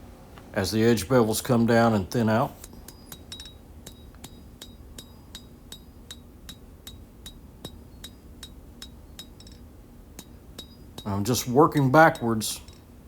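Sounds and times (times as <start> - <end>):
hammer striking steel on anvil: 10.2 - 11.1.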